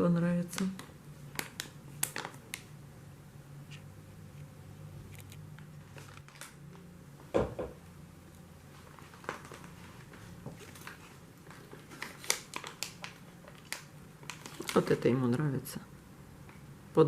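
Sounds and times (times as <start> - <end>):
knock: 7.3 - 7.8
cat crunching dry treats: 10.6 - 15.0.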